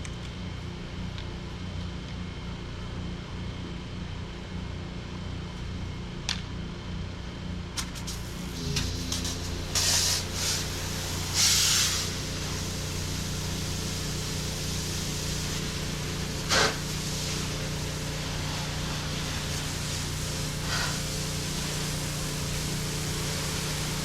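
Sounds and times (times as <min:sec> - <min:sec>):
pressure washer engine running: 0:07.5 - 0:24.0
spray hissing from wand: 0:08.0 - 0:24.0.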